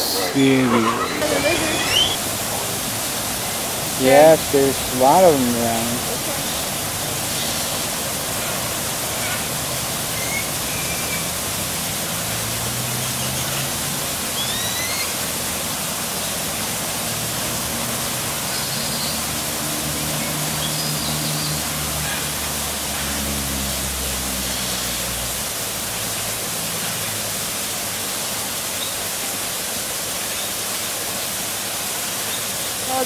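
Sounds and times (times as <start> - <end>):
faint bird chirps: 0.0 - 2.2
rush of falling water: 0.0 - 33.0.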